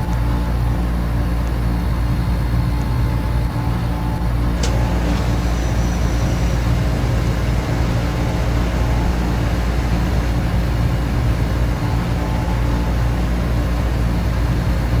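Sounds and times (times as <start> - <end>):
air conditioner humming: 0.0 - 15.0
small click: 4.6 - 4.9.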